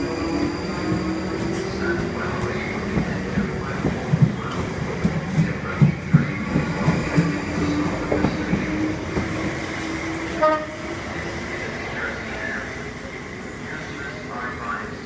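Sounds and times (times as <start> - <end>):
train wheels clickety-clack: 0.8 - 10.4.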